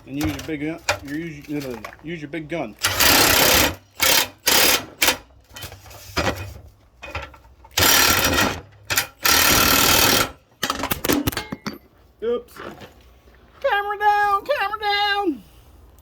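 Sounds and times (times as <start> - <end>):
impact wrench hammering: 2.8 - 5.3, 7.8 - 11.8.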